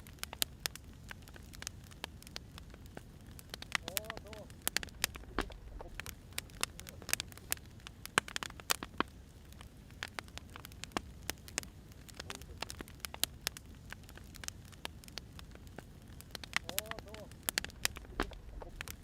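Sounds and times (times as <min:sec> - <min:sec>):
wood fire crackling and popping: 0:00.0 - 0:19.0
low steady rumble: 0:02.5 - 0:07.9, 0:15.3 - 0:19.0.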